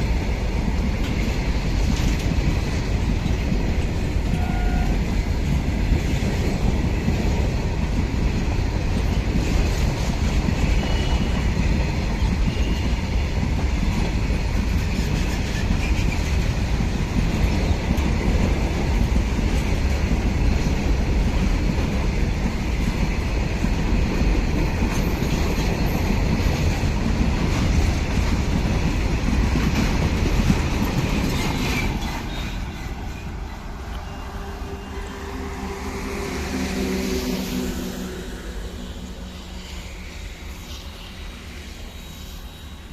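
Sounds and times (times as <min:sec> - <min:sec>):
wheels clickety-clack: 0:00.0 - 0:34.1
railway wagons rolling past: 0:00.0 - 0:42.9.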